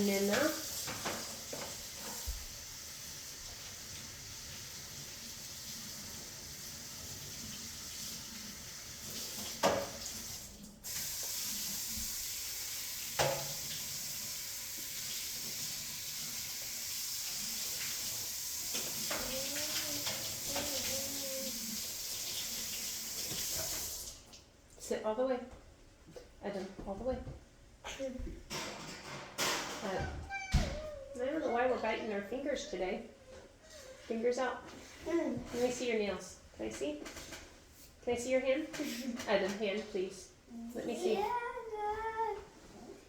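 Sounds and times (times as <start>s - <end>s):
running water hiss: 0.0s - 24.4s.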